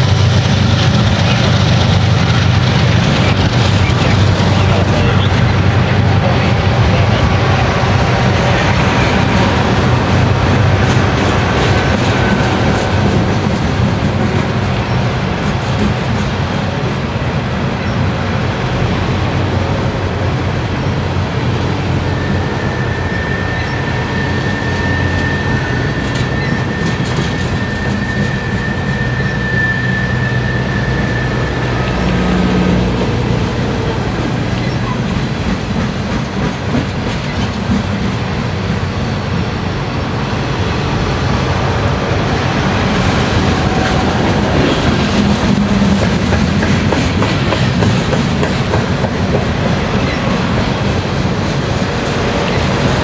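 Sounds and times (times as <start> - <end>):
freight train rolling past: 0.0 - 53.0
high wheel squeal: 21.6 - 32.7, 40.0 - 41.8.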